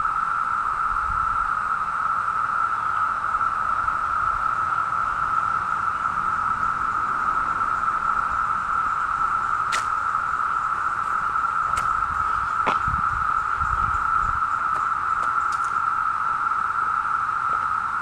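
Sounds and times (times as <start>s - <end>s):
cicada chorus drone: 0.0s - 18.0s.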